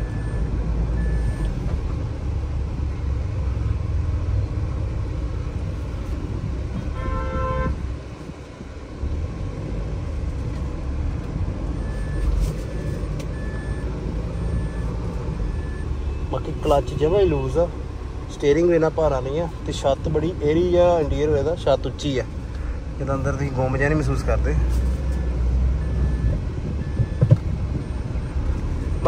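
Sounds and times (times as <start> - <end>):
diesel engine rumble: 0.0 - 29.0
vehicle horn: 6.9 - 7.9
short beeps: 11.8 - 16.2, 25.1 - 29.0.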